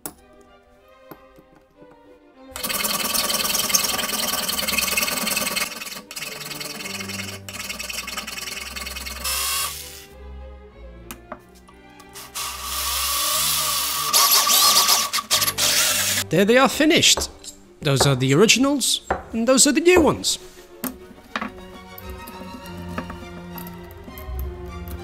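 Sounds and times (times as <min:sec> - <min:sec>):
power tool whining on steel: 0:02.5 - 0:10.2, 0:12.0 - 0:16.2.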